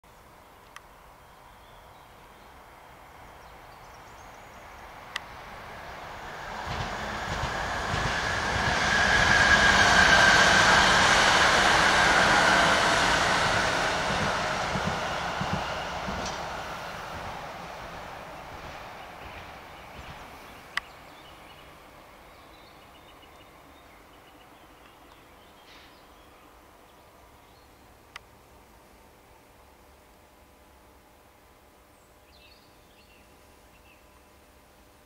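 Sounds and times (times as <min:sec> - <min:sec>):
train wheels rumbling and clattering: 0:04.9 - 0:21.6.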